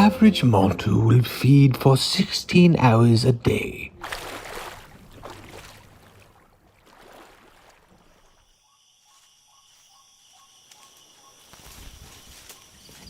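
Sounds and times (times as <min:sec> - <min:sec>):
insects chirping: 0:06.8 - 0:13.0.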